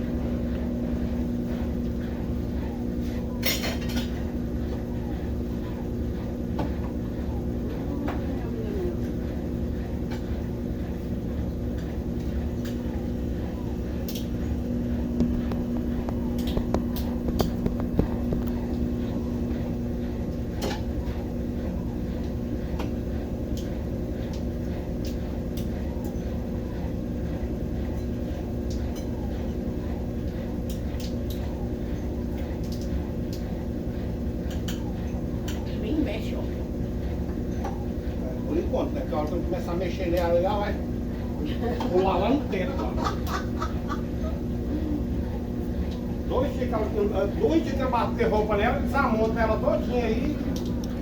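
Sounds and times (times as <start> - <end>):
washing machine spinning: 0.0 - 51.0.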